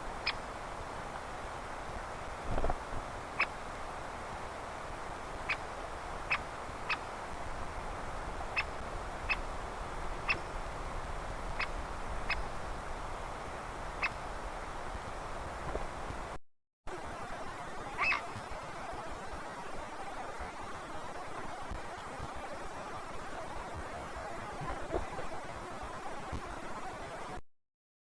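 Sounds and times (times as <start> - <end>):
wind hiss: 0.0 - 26.6
woodpecker calls: 5.5 - 5.7, 6.3 - 7.1, 8.5 - 9.5, 10.2 - 10.5, 11.6 - 12.5, 18.0 - 18.3.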